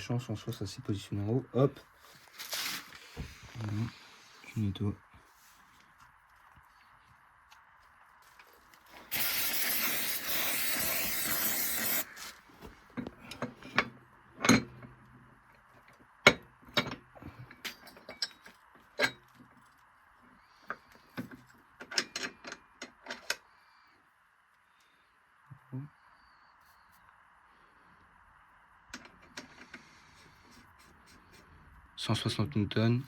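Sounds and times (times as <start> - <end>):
aerosol can spraying: 9.0 - 12.2
metal parts and tools clinking: 16.8 - 19.3.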